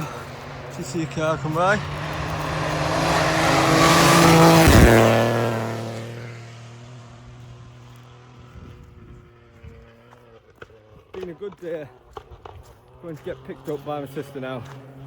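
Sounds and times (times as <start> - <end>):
car passing at speed: 0.0 - 10.3.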